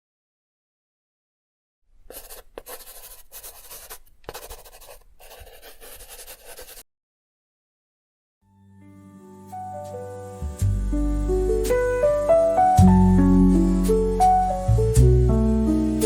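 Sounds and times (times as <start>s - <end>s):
pencil scratching on paper: 2.1s - 6.8s
soft piano music: 8.4s - 16.0s.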